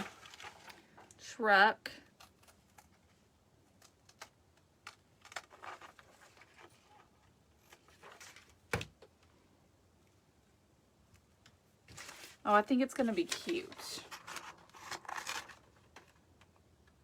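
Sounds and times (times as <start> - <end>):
paper pieces handled on a table: 2.1 - 8.9, 11.9 - 16.6.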